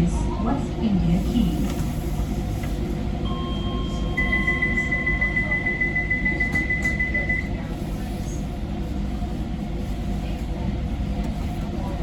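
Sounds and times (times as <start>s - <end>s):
train rumbling along track: 0.0s - 12.0s
steady high-pitched tone: 3.2s - 7.6s.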